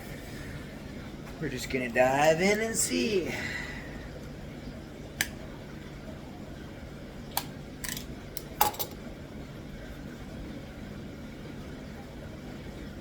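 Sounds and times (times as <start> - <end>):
low equipment hum: 0.0 - 13.0.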